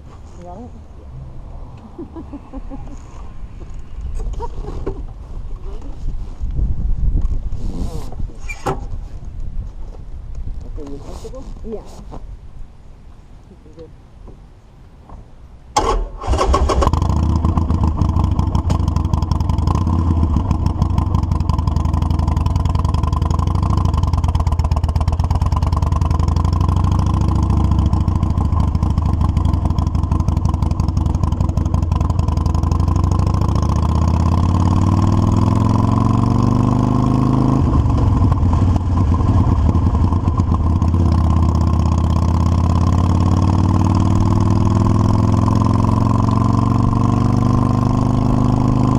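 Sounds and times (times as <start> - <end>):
motorcycle engine starting and running: 15.8 - 48.9.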